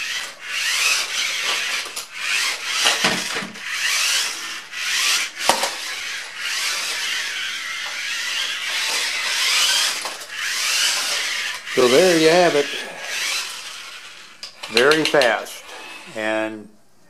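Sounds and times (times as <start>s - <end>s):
rubber tracks scrubbing floor: 0.0s - 14.3s
toy car electric motors whining: 0.0s - 16.5s
toy car knocking: 0.1s - 4.3s, 4.9s - 12.6s, 14.4s - 15.5s.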